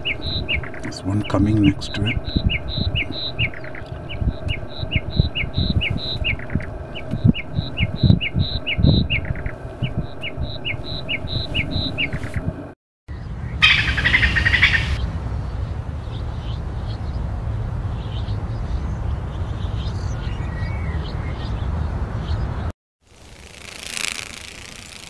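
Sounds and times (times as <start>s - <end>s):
lapwing calling sharp notes: 0.0s - 12.5s.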